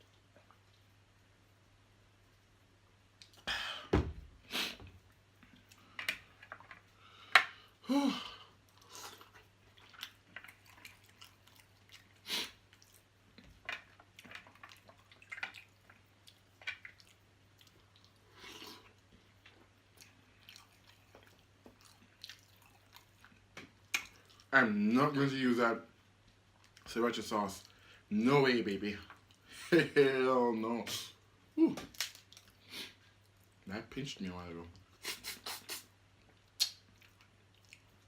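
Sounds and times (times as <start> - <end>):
chewing and lip smacking: 8.6 - 24.5, 26.1 - 26.9, 34.8 - 38.0.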